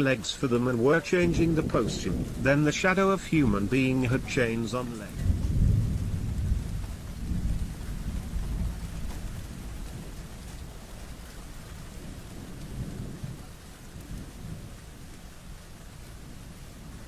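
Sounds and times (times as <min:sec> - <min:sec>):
low rumbling: 0:00.0 - 0:10.4
rain falling: 0:00.0 - 0:17.0.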